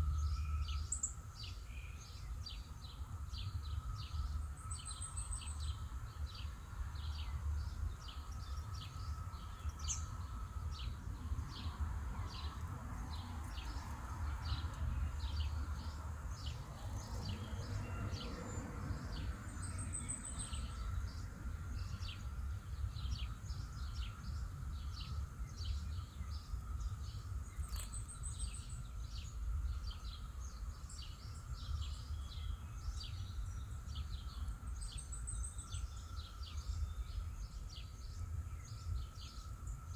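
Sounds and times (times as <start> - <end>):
small bird chirping: 24.8 - 39.5.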